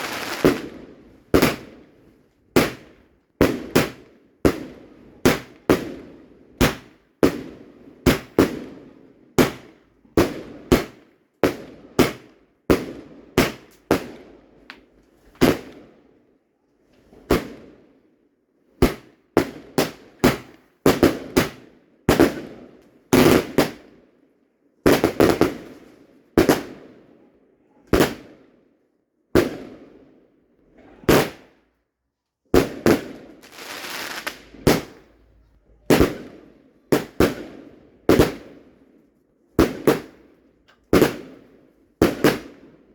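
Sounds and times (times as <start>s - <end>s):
fireworks bangs: 0.0s - 1.7s, 32.5s - 35.2s, 35.8s - 38.6s, 42.0s - 42.7s.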